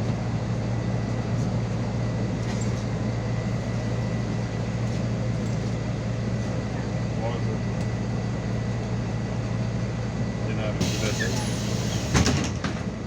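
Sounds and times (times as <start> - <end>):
bus engine humming inside cabin: 0.0 - 13.0.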